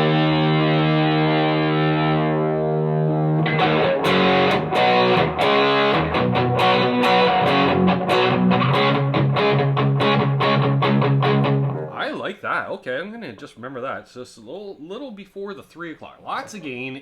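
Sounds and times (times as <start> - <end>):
distorted electric guitar: 0.0 - 12.0.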